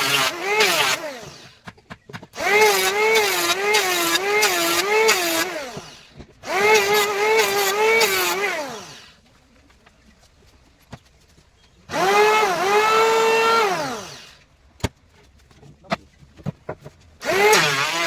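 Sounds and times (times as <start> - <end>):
power tool cutting wood: 0.0 - 1.6, 2.4 - 9.2, 11.9 - 14.4, 17.2 - 18.0.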